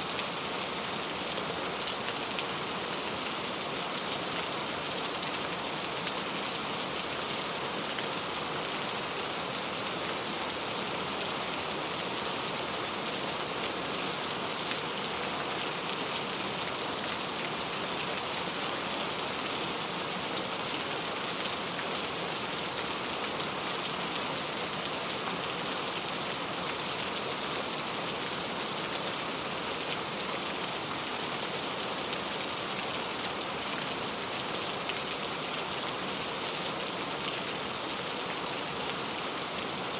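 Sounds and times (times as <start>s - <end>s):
steady rain pattering: 0.0s - 39.9s.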